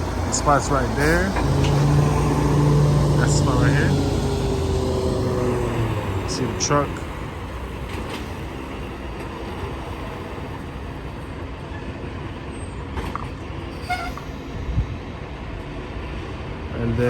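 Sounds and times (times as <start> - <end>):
diesel truck engine rumbling: 0.0 - 11.0
short squeak: 13.2 - 14.6.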